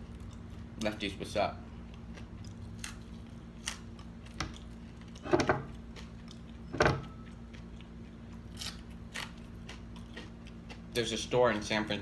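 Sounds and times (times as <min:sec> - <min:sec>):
tableware knocks and clicks: 0:06.7 - 0:07.0.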